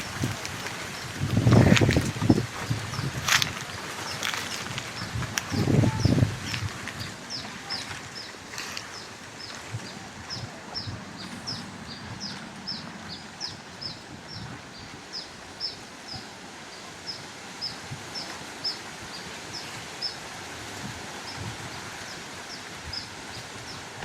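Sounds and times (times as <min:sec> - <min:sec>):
footsteps on dry leaves: 0:00.0 - 0:09.7
bird chirping: 0:05.0 - 0:06.6.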